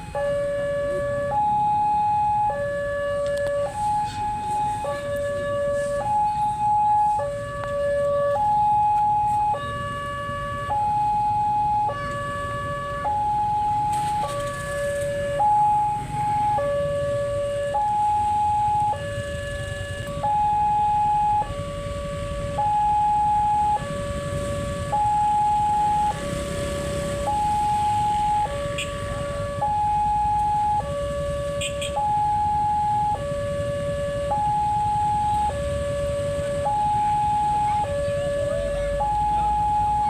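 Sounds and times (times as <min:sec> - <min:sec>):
two-tone crossing alarm: 0:00.0 - 0:40.0.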